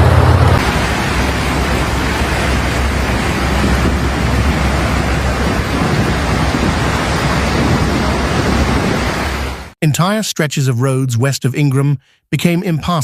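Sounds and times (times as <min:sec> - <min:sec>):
deep rumble: 0:00.0 - 0:09.1
heavy rain hissing: 0:00.0 - 0:09.7.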